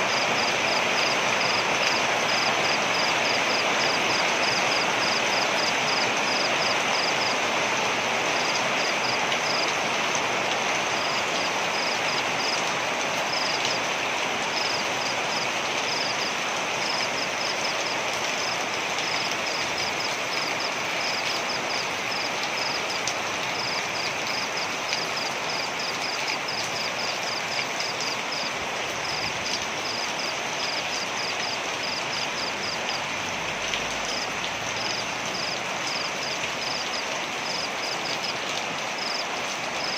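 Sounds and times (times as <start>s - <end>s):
waterfall rushing: 31.8s - 37.6s.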